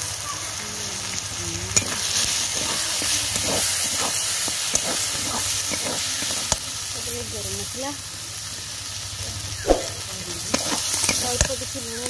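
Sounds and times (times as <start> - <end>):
food sizzling in a pan: 0.0 - 12.0
metal spatula scraping a pan: 1.8 - 7.2, 9.7 - 11.7.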